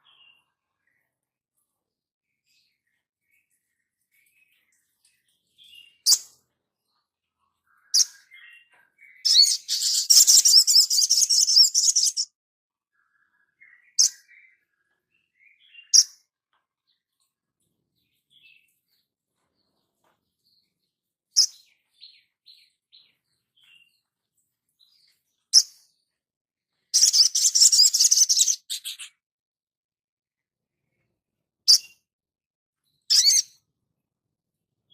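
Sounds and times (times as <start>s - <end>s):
songbird chipping: 7.5s - 12.3s, 26.9s - 29.2s, 33.0s - 33.6s.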